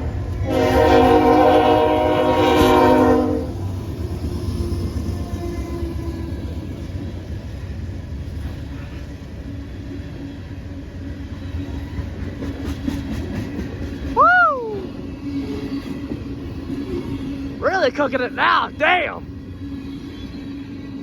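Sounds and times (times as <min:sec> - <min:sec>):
freight train rumbling past: 0:00.0 - 0:21.0.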